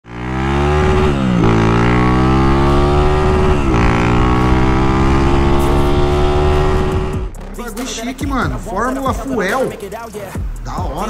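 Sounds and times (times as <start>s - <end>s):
motorcycle accelerating through gears: 0.0s - 7.3s.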